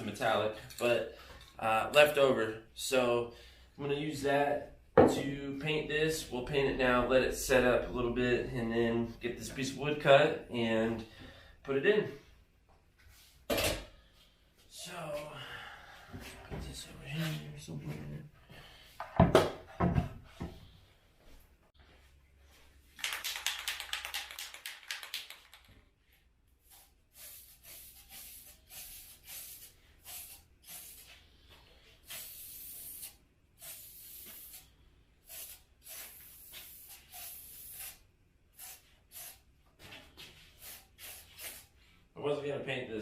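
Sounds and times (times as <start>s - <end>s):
aerosol can rattling: 23.0s - 25.8s
aerosol spray hissing: 26.6s - 31.2s, 32.0s - 39.4s, 40.6s - 41.7s.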